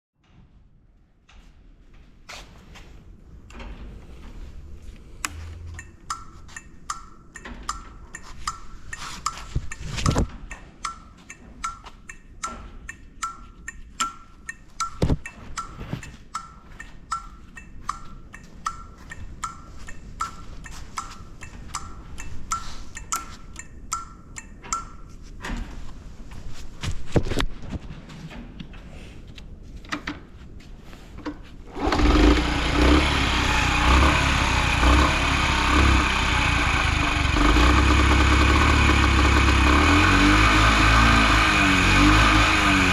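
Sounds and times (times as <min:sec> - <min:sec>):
motorbike engine starting and idling: 0:31.7 - 0:42.9.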